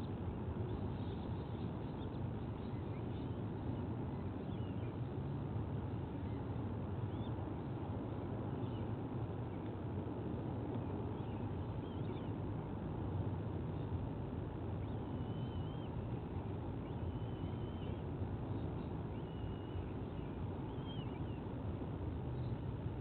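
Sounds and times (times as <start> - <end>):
high wavering whistled bird calls: 14.8 - 21.5.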